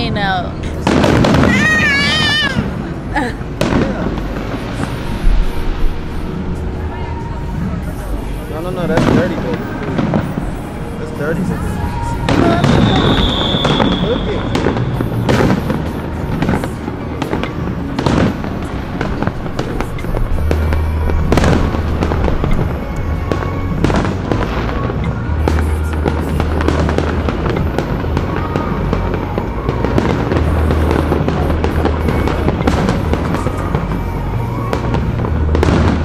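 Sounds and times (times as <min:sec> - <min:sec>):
fireworks bangs: 0:00.0 - 0:36.0
music playing: 0:00.0 - 0:36.0.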